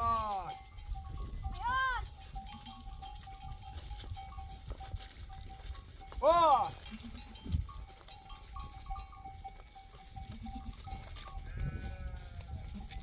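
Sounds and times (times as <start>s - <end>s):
livestock bell ringing: 0.0s - 13.0s
sheep bleating: 10.3s - 13.0s.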